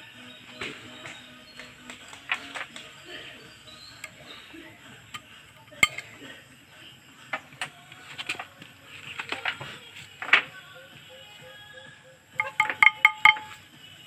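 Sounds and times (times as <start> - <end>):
metallic clinks of hand tools: 5.1 - 6.1, 12.4 - 13.6.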